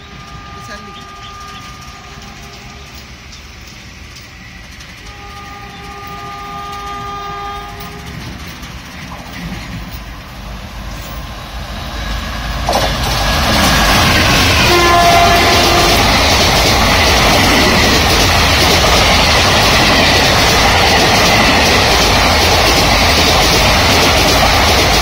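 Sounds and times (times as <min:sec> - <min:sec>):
train horn blast: 0:00.0 - 0:03.0, 0:05.1 - 0:08.2, 0:14.5 - 0:16.2
train wheels clattering past: 0:00.9 - 0:11.3, 0:12.5 - 0:25.0.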